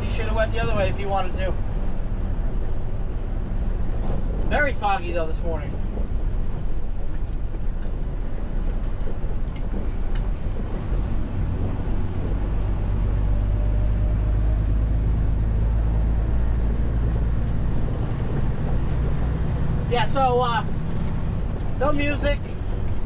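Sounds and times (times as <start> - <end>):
diesel truck engine rumbling: 0.0 - 23.0.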